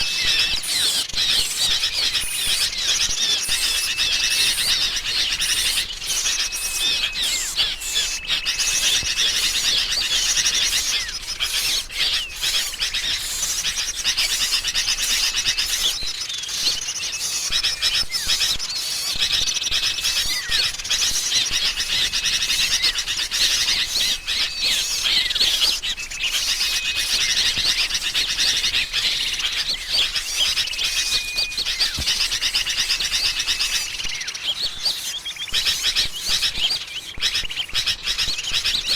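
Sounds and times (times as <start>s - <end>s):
bulbul calls chattering: 0.0s - 38.9s
small songbirds chirping: 0.0s - 38.9s.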